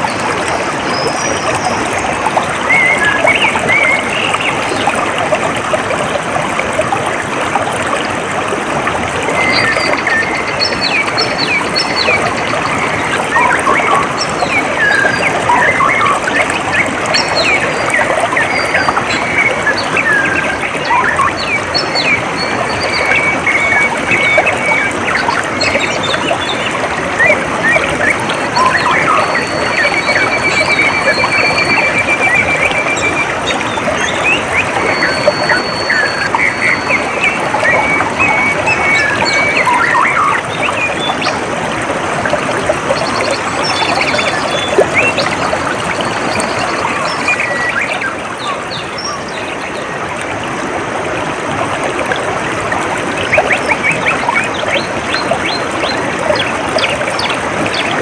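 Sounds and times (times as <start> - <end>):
birds chirping: 0.0 - 5.7, 9.1 - 41.4, 42.6 - 50.1
water trickling: 0.0 - 58.0.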